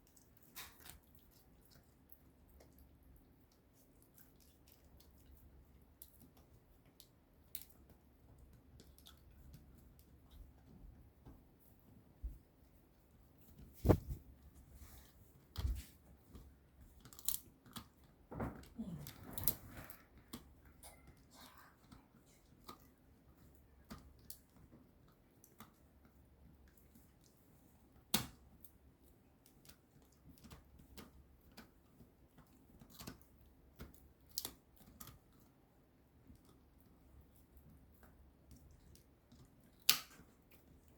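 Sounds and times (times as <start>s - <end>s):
puppy gnawing on a chew: 0.0s - 10.8s.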